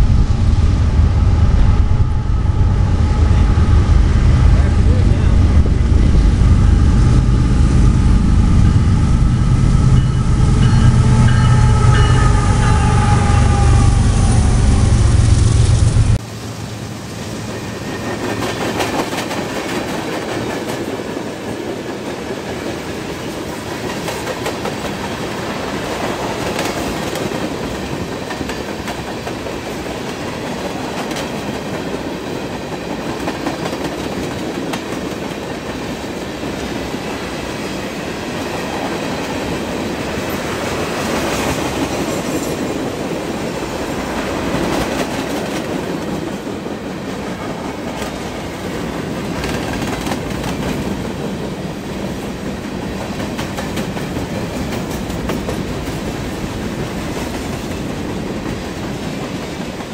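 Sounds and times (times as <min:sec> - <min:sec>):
freight train rumble: 0:00.0 - 0:59.9
train wheels clicking over rail joints: 0:38.7 - 0:59.9.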